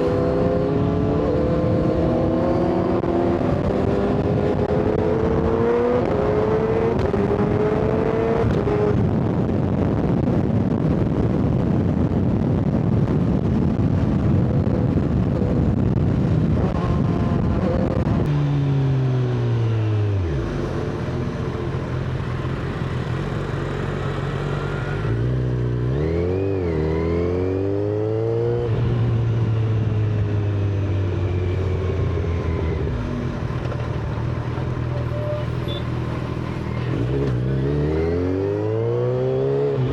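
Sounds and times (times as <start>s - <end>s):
motorcycle engine revving: 0.0s - 9.1s, 16.5s - 39.9s
wind rush over microphone: 0.0s - 18.3s.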